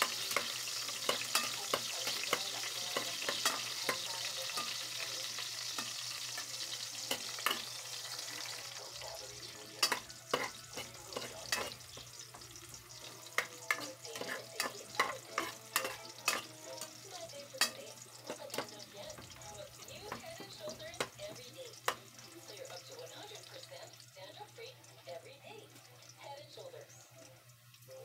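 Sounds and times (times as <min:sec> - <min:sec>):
metal spoon scraping a pot: 0:00.0 - 0:08.6, 0:09.8 - 0:22.2
onion sizzling in hot oil: 0:00.0 - 0:28.0.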